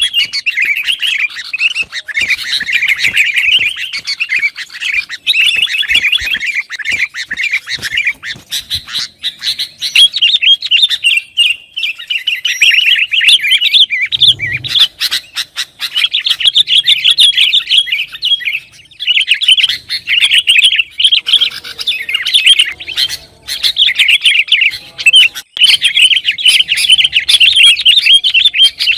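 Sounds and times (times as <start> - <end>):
bird chattering calls: 0.0 - 28.9.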